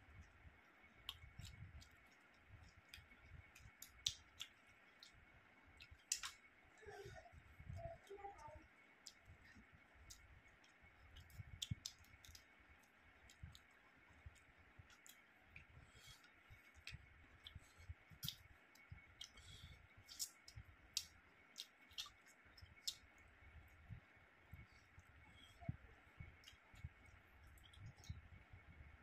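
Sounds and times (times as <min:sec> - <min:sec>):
person chewing with wet clicks: 0:00.1 - 0:06.6, 0:07.6 - 0:28.8.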